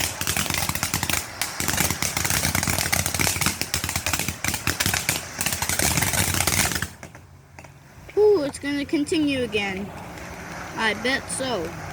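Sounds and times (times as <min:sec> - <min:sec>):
ground firework crackling: 0:00.0 - 0:11.6.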